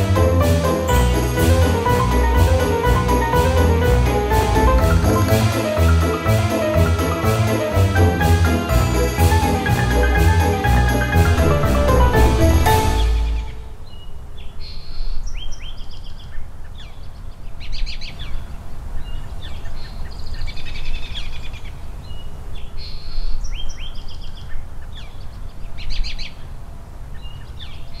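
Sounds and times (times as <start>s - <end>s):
songbirds chirping and trilling: 12.6s - 28.0s.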